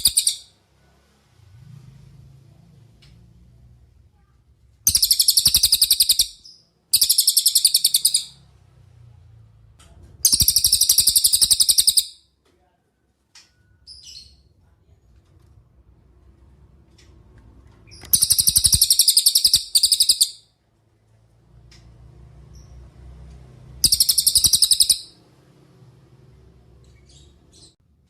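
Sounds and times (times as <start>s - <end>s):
bird trilling: 0.0s - 0.5s, 4.9s - 8.4s, 10.2s - 12.2s, 17.9s - 20.5s, 23.8s - 25.2s.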